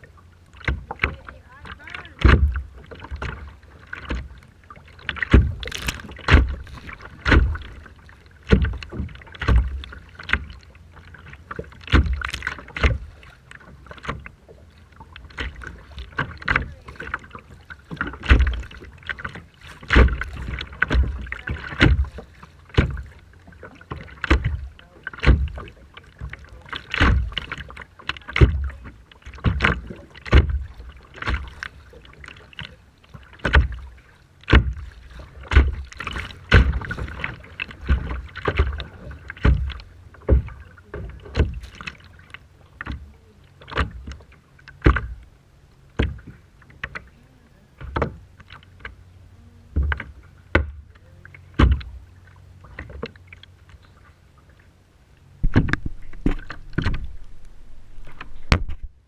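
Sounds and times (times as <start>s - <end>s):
rough sea water splashing: 0.0s - 59.0s.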